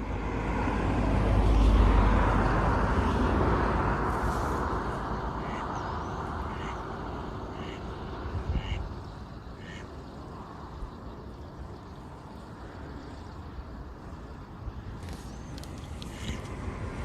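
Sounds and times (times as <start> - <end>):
low rumble of wind or traffic: 0.0 - 17.0
ducks quacking: 5.4 - 5.8, 6.4 - 6.8, 7.5 - 7.9, 8.5 - 8.9, 9.6 - 9.9.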